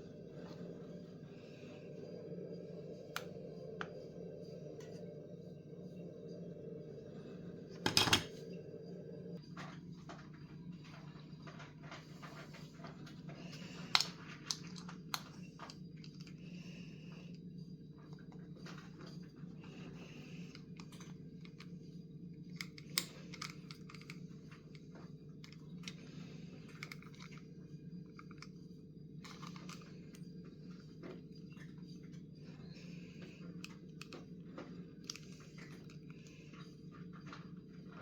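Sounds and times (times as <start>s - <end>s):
steady low hum: 0.0s - 38.0s
plastic parts and packaging handled: 29.2s - 29.9s.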